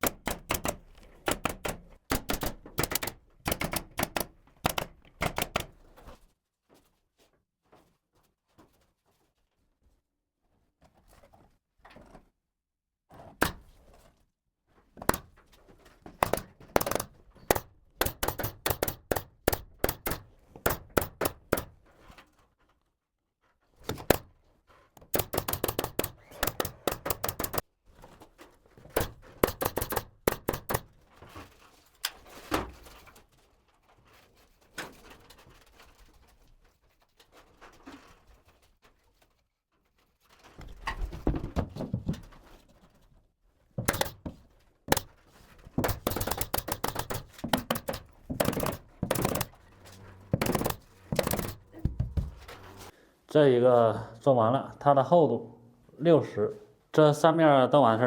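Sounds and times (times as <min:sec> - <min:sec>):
scattered knocks: 0:00.0 - 0:05.7, 0:16.2 - 0:21.8, 0:23.9 - 0:24.3, 0:25.1 - 0:27.6, 0:28.9 - 0:30.9, 0:43.8 - 0:45.2, 0:45.8 - 0:52.9
nail gun firing into wood: 0:00.0 - 0:05.8, 0:15.0 - 0:15.3, 0:16.2 - 0:21.8, 0:23.9 - 0:24.3, 0:25.0 - 0:27.6, 0:28.9 - 0:31.0, 0:43.8 - 0:49.6, 0:50.3 - 0:52.2.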